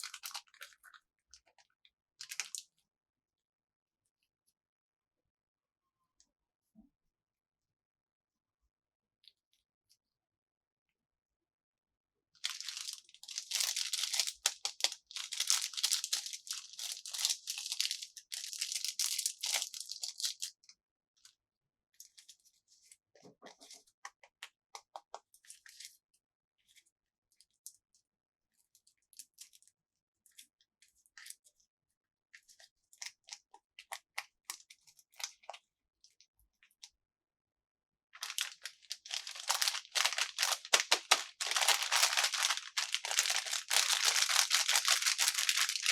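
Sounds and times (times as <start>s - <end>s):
packaging crinkling and tearing: 0.0s - 1.0s, 12.4s - 20.5s, 38.2s - 45.9s.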